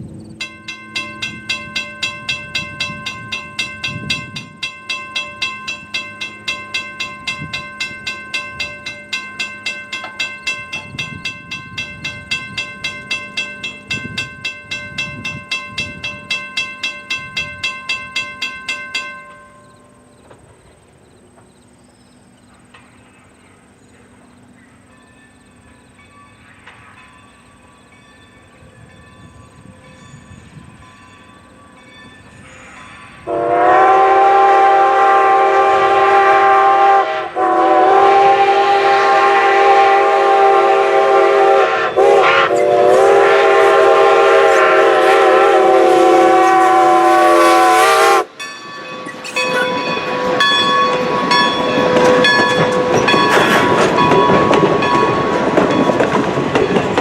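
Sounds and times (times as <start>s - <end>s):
passing train: 0.0s - 57.0s
locomotive steam whistle: 32.5s - 48.4s.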